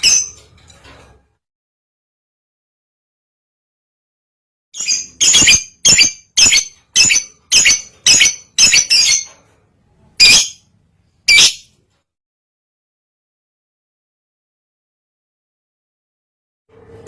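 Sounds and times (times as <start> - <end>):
bird high chirps: 4.8 - 9.3.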